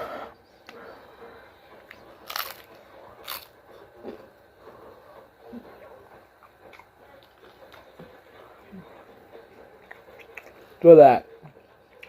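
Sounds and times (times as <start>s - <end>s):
soft chewing: 0.6s - 12.0s
taco crunching: 1.8s - 4.3s, 5.6s - 10.9s.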